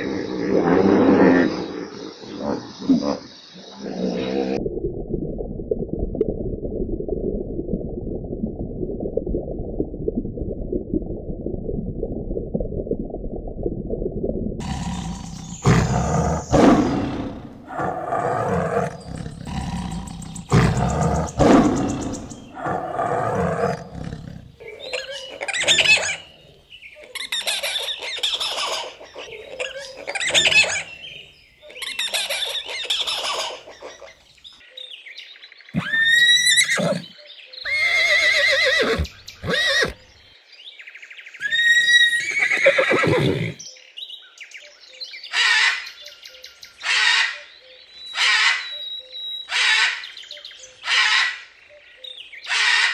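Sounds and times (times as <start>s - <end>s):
low animal rumbling: 14.6s - 24.6s
loud animal calls: 14.6s - 26.3s.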